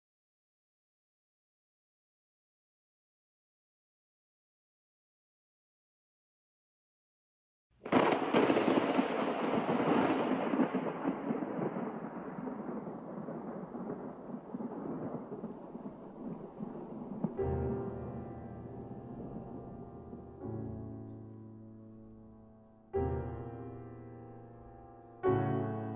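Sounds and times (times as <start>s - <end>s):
thunder clap rolling: 7.8s - 20.8s
piano low chord: 17.4s - 25.9s.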